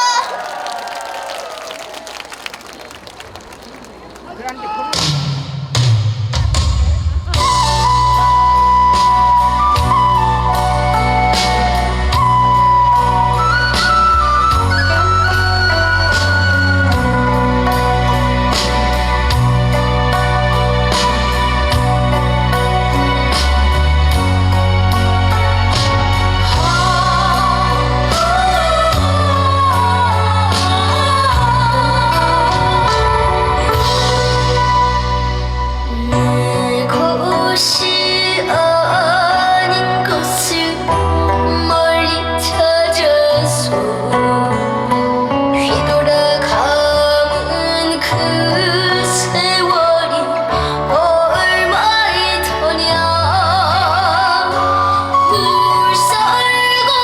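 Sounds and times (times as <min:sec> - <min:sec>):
backing track with bass and drums: 0:04.9 - 0:36.8
boy singing: 0:35.9 - 0:54.7.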